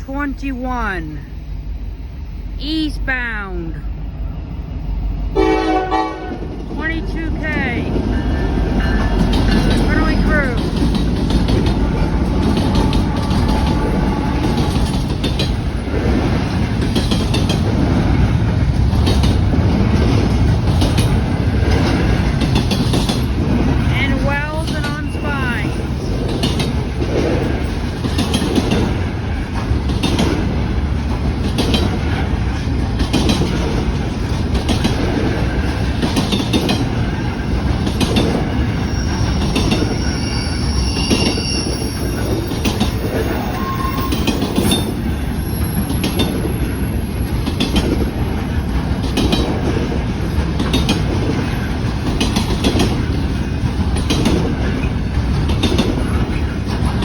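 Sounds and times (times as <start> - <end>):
freight train rumble: 0.0 - 57.0
wheels clicking over rail joints: 7.9 - 25.2, 25.8 - 40.0, 42.3 - 57.0
high-pitched wheel squeals: 38.6 - 46.3.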